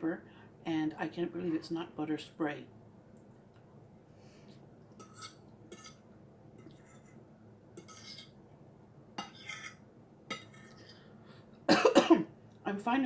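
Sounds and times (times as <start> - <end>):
cutlery clinking on plate: 5.0 - 6.0, 9.2 - 10.9.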